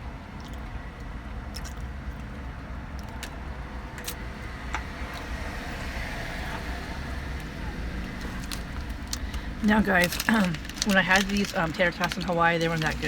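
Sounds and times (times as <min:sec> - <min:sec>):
low traffic rumble: 0:00.0 - 0:13.0
food packaging crinkling: 0:07.9 - 0:13.0.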